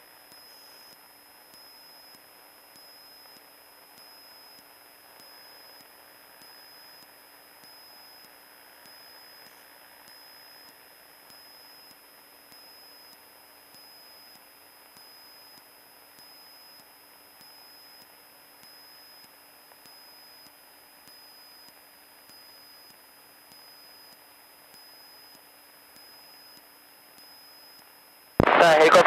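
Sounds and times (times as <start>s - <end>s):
radio static hiss: 28.4s - 29.0s.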